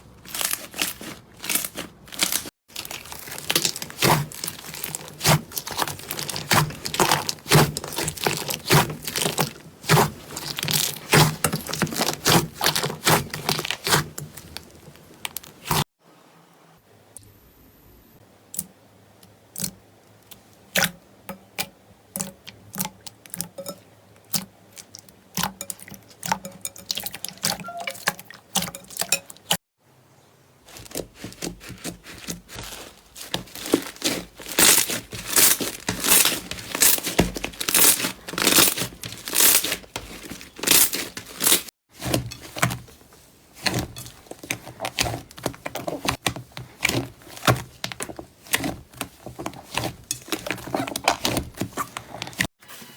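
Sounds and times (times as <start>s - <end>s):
slime crackling and popping: 0.3s - 15.8s, 30.8s - 41.7s.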